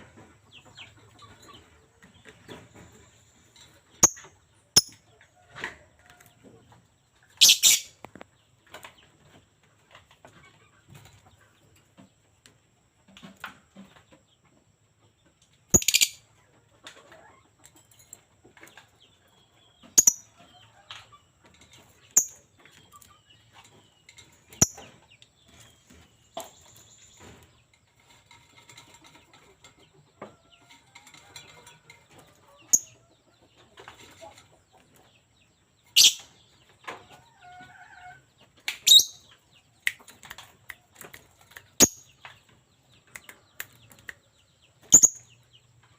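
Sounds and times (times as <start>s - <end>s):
faint bird chatter: 0.0s - 45.9s
lovebird shrill chirps: 7.4s - 7.9s.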